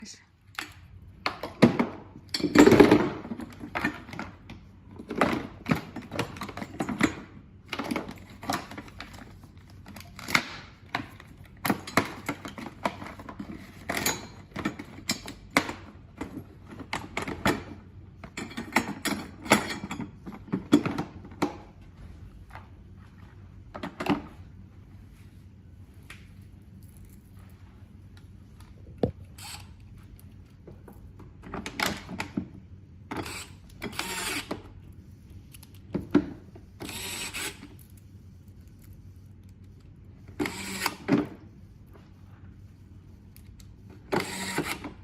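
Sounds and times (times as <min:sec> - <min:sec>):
metal tools clicking and clinking: 0:18.3 - 0:20.9.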